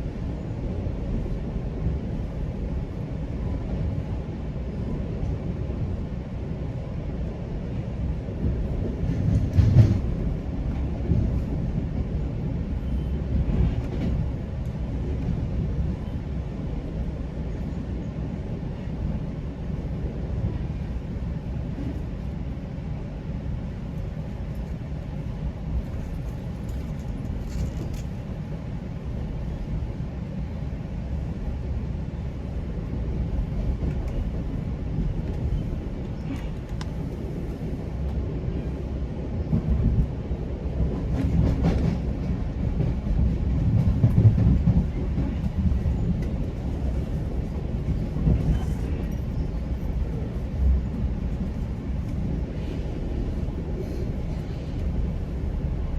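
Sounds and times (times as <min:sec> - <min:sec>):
train wheels rumbling on rails: 0:00.0 - 0:55.9
train bumps: 0:08.4 - 0:12.1.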